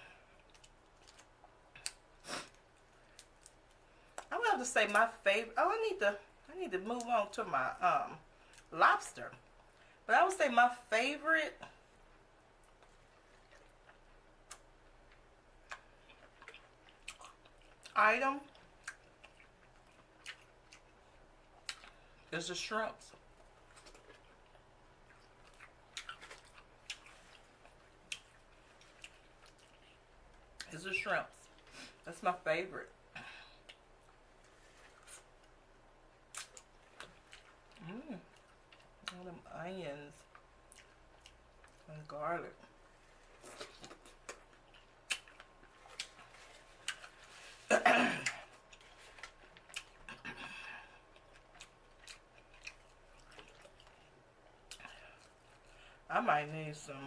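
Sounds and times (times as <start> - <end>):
person chewing: 0.2 - 4.3, 12.6 - 22.3, 23.2 - 30.7, 33.4 - 39.2, 40.3 - 41.9, 42.8 - 55.8.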